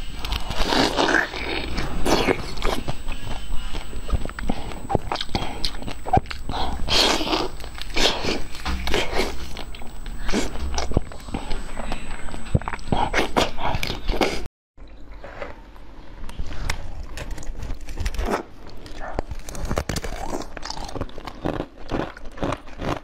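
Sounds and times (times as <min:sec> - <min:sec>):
chewing with wet smacks: 0:02.3 - 0:15.4, 0:20.1 - 0:23.0.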